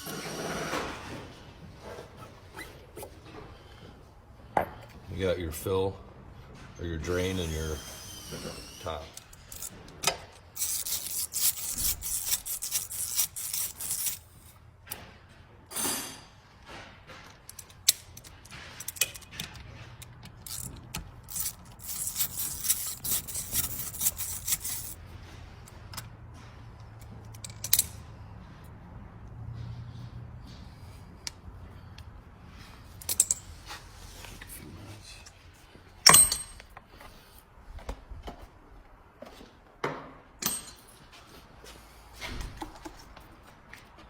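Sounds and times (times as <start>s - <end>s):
tools clicking and scraping: 7.4s - 28.1s, 30.5s - 35.4s, 36.0s - 37.5s, 40.4s - 41.2s.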